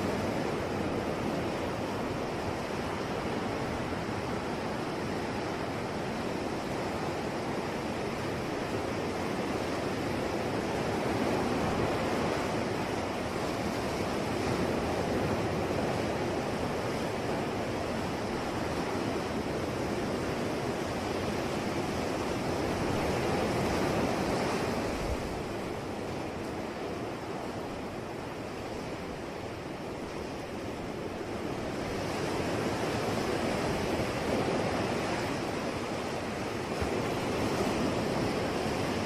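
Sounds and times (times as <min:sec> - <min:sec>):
sea waves washing on shore: 0:00.0 - 0:39.0.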